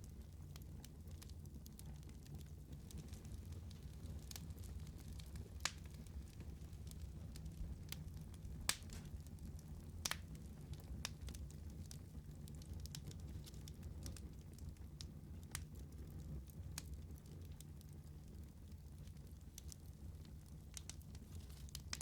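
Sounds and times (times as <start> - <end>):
wood fire crackling: 0.0 - 22.0
sharp fire pops: 8.6 - 9.2.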